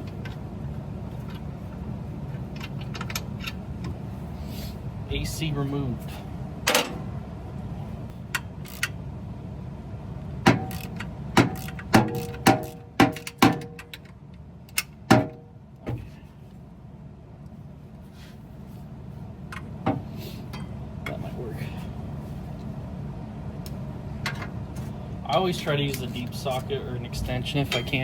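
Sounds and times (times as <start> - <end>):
steady low hum: 0.0 - 28.0
metal tools clanking: 25.8 - 28.0.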